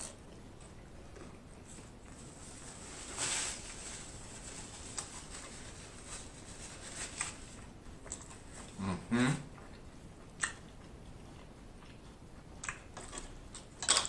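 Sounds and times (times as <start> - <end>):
soft chewing clicks: 7.2 - 8.9, 9.5 - 14.0.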